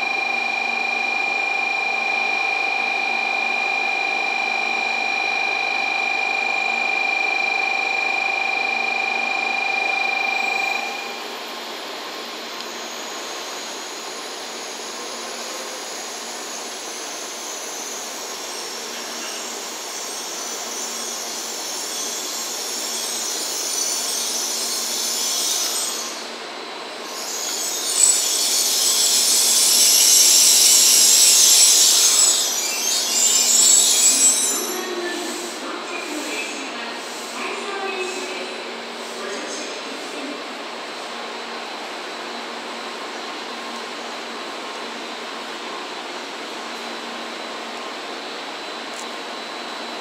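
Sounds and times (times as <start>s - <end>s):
steady electronic tone: 0.0s - 14.9s
train hum and rolling hiss: 0.0s - 50.0s
brake squeal: 27.1s - 35.5s.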